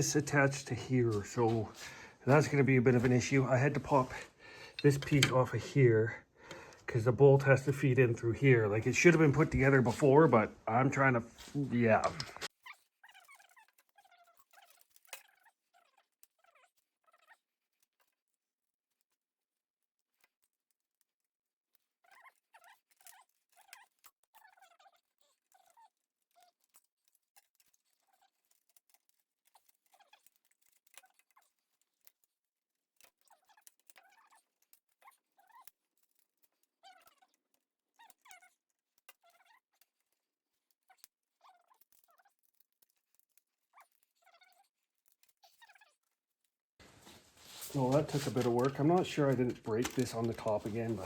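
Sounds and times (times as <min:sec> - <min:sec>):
faint small clicks: 0:32.9 - 0:51.0.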